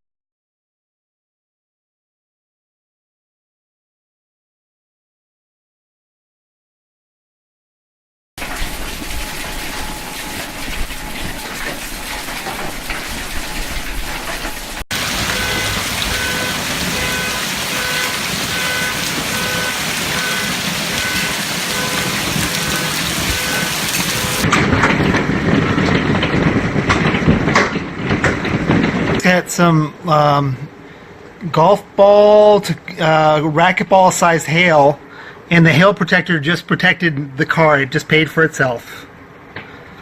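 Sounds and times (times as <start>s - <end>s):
hail and rain pounding: 8.4s - 29.3s.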